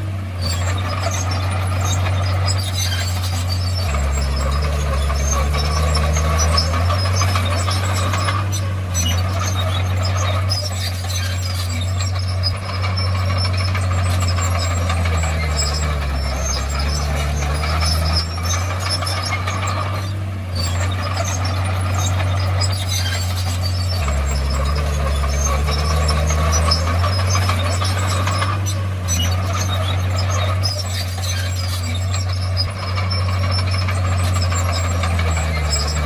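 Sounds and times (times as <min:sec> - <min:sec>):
bulldozer diesel engine droning: 0:00.0 - 0:36.0
running gear clatter and squeak: 0:00.0 - 0:36.0.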